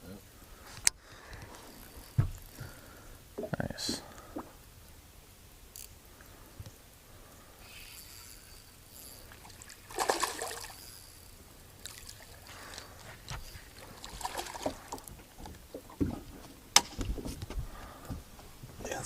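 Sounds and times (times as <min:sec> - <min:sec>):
low thump: 0:02.1 - 0:02.4
water splash: 0:09.4 - 0:10.8, 0:14.0 - 0:15.0.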